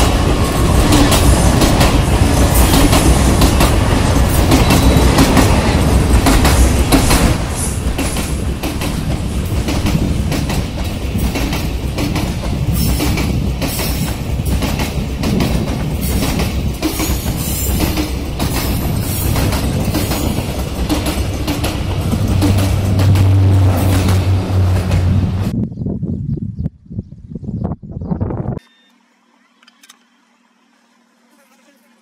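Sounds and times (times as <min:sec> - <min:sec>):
train wheels clattering over rail joints: 0:00.0 - 0:25.1
train rolling rush: 0:00.0 - 0:25.6.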